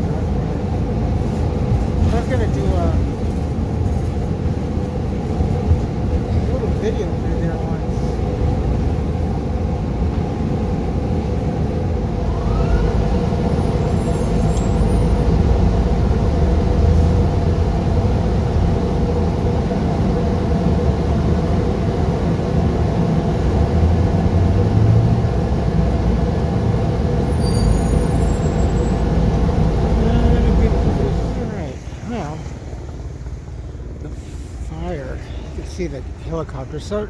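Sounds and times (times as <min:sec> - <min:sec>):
bus engine and road rumble: 0:00.0 - 0:37.0.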